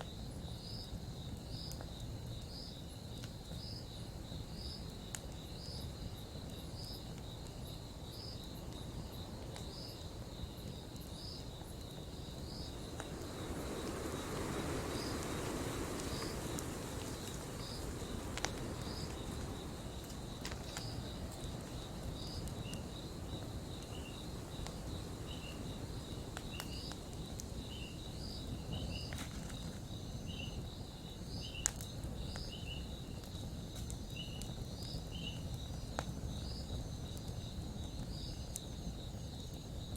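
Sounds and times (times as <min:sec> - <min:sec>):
campfire crackling: 0:00.0 - 0:39.9
crickets chirping: 0:00.0 - 0:39.9
soft rush of noise: 0:11.6 - 0:29.9.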